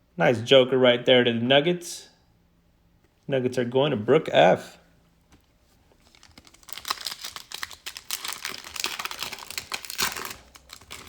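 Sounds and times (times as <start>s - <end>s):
plastic wrapper crinkling: 5.4s - 11.0s.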